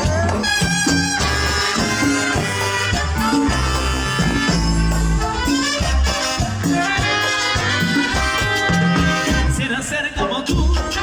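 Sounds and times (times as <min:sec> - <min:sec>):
live dance band playing: 0:00.0 - 0:11.0.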